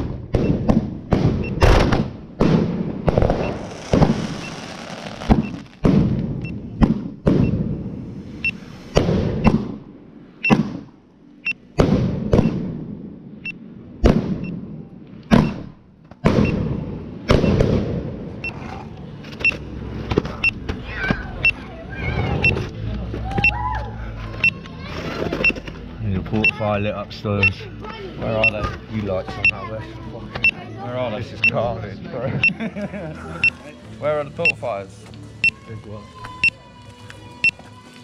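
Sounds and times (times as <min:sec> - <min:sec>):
fireworks bangs: 0:00.0 - 0:08.1, 0:08.9 - 0:09.8, 0:11.8 - 0:13.1, 0:15.3 - 0:18.3.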